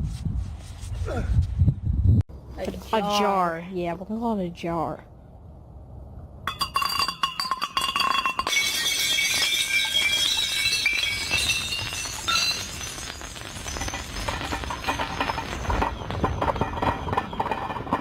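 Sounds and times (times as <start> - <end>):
glass clinking and ringing: 6.5 - 18.0.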